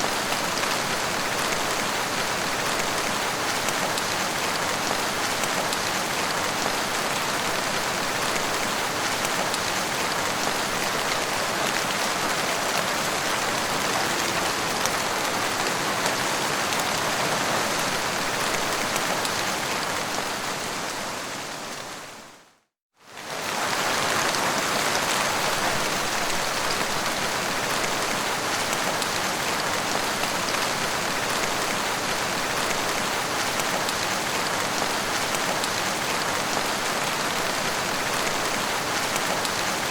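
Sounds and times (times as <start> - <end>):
heavy rain falling: 0.0 - 22.4, 23.1 - 39.9.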